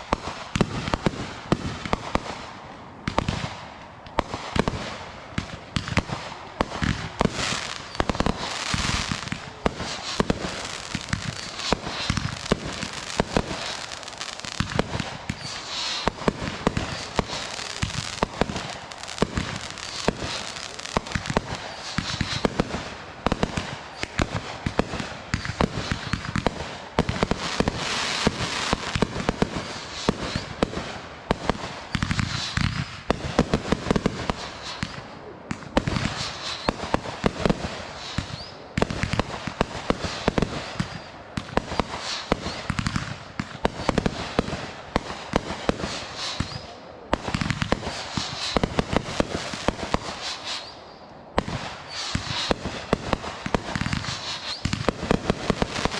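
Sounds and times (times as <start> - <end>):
fireworks crackling pops: 0.0 - 55.9.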